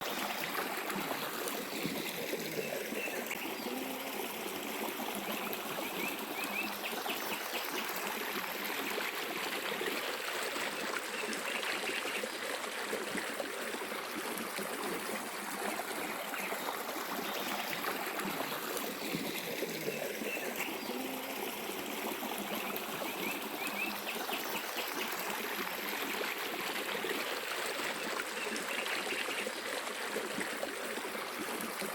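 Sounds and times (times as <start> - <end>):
stream trickling over stones: 0.0 - 31.9.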